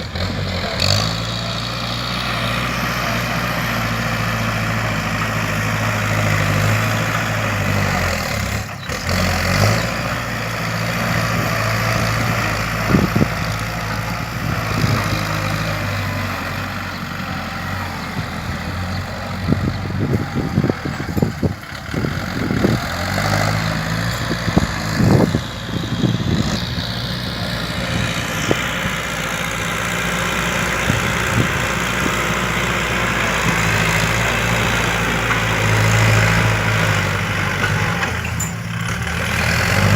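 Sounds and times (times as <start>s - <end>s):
tractor diesel engine running: 0.0s - 39.9s
short clunks and rattles: 35.1s - 39.9s.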